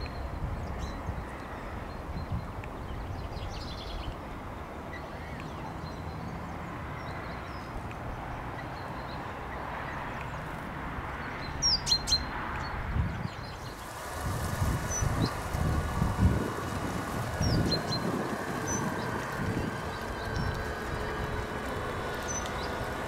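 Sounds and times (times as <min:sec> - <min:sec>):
birds chirping and calling: 0:13.1 - 0:23.0
low background rumble: 0:13.5 - 0:23.0.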